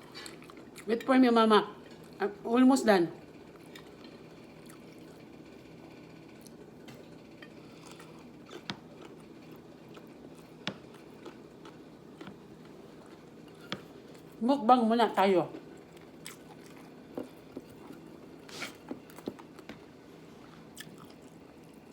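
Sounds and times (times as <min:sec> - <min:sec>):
person chewing food: 0:00.1 - 0:00.9, 0:01.9 - 0:02.2, 0:03.5 - 0:05.2, 0:06.4 - 0:14.4, 0:15.6 - 0:21.9.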